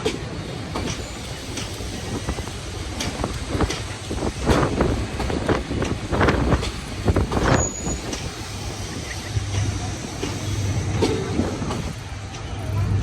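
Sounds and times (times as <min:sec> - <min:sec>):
train engine hum: 0:00.0 - 0:13.0
high train squeal: 0:00.5 - 0:05.5, 0:06.2 - 0:13.0
train wheel knocks on rail joints: 0:03.0 - 0:08.3.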